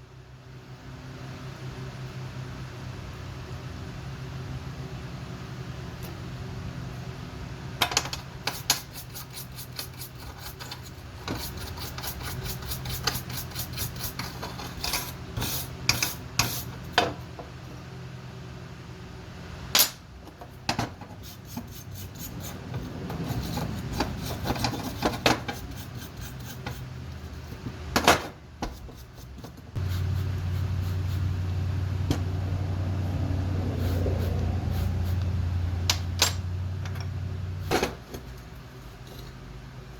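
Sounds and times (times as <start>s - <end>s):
steady low hum: 0.0s - 39.9s
hand tools scraping on metal: 8.1s - 16.9s, 20.4s - 27.6s, 28.7s - 31.5s.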